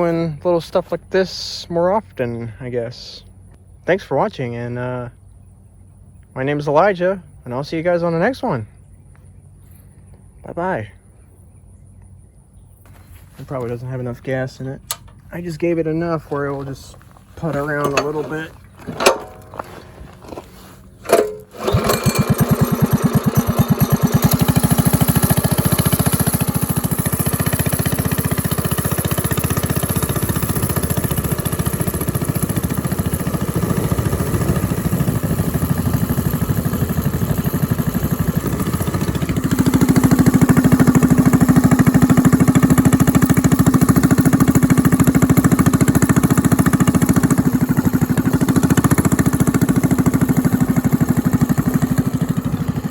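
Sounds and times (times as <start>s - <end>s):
small engine running: 16.2s - 52.9s.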